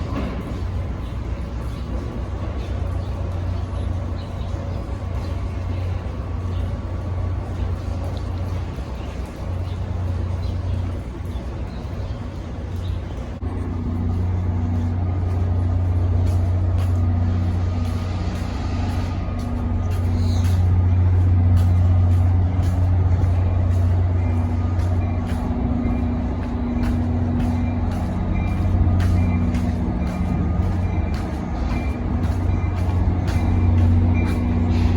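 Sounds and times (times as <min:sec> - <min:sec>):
train running hum: 0:00.0 - 0:34.9.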